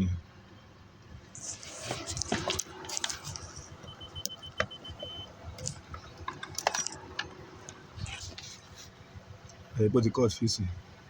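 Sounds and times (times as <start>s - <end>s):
rapid high beeping: 2.6s - 7.5s
clicks and rattles at fuse box: 5.6s - 7.8s.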